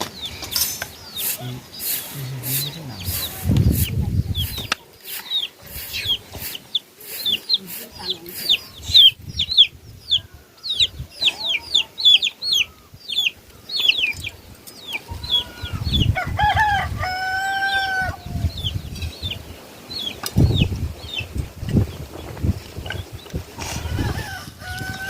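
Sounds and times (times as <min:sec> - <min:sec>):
chicks peeping: 0:00.0 - 0:25.0
rooster crowing: 0:15.2 - 0:18.4, 0:23.8 - 0:25.0.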